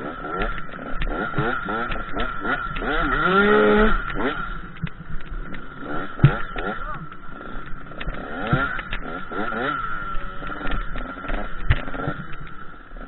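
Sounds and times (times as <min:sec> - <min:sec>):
motocross bike revving: 0:00.0 - 0:13.0.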